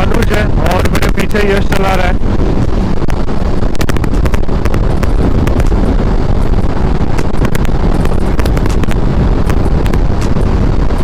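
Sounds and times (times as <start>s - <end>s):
motorcycle engine: 0.0s - 11.0s
road noise: 0.0s - 11.0s
wind buffeting microphone: 0.0s - 11.0s
sharp ticks: 3.8s - 10.5s.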